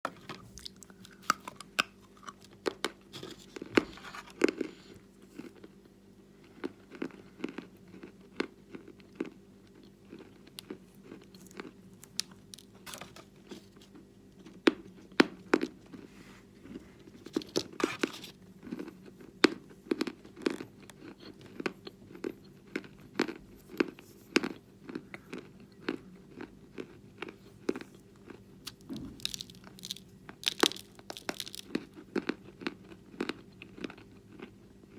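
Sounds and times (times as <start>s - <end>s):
faint steady hum: 0.1s - 34.9s
chewing crunchy chalk: 15.5s - 34.5s.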